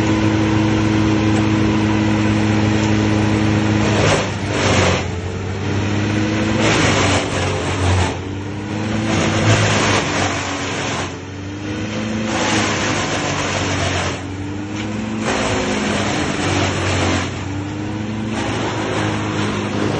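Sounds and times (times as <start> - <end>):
power equipment engine running: 0.0 - 19.9
saw cutting into wood: 3.7 - 5.2, 6.1 - 11.2, 11.9 - 17.5, 18.1 - 19.9.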